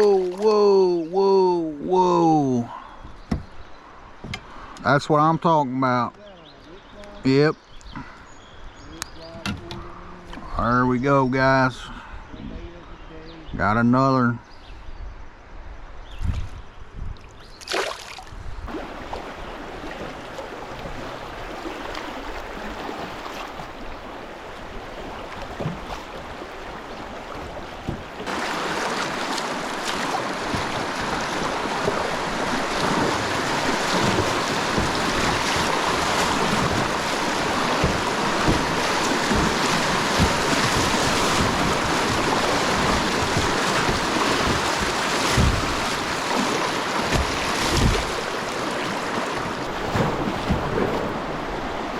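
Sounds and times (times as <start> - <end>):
wind buffeting microphone: 14.7 - 17.6, 18.2 - 19.8, 24.0 - 51.9
river water rushing: 17.7 - 51.9.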